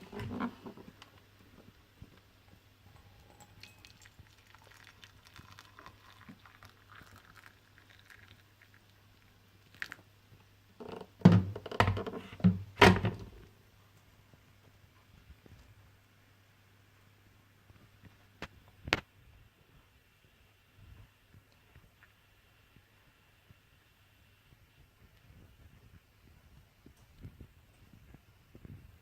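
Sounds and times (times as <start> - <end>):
loud thumps and knocks: 11.2 - 13.4.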